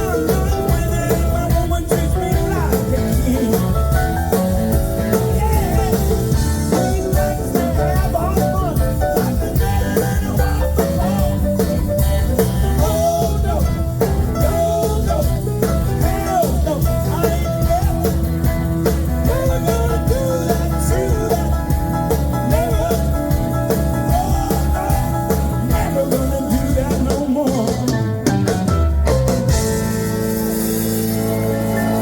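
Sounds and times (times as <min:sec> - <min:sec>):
blues band playing: 0:00.0 - 0:32.0
drum beat: 0:00.0 - 0:32.0.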